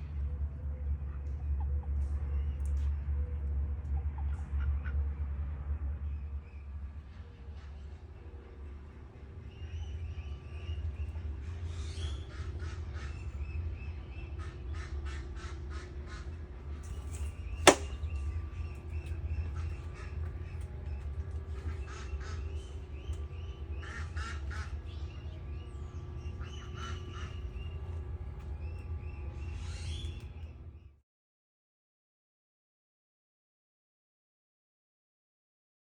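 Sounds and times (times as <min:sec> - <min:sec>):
steady low rumble: 0:00.0 - 0:30.9
birds calling: 0:09.3 - 0:30.8
sharp click: 0:17.7 - 0:18.0.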